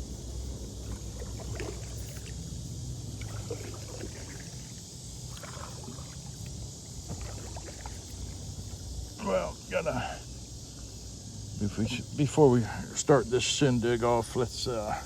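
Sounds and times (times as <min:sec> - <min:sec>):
paddle splashing water: 0:00.8 - 0:02.4, 0:03.2 - 0:08.8
steady high hiss: 0:07.8 - 0:15.0.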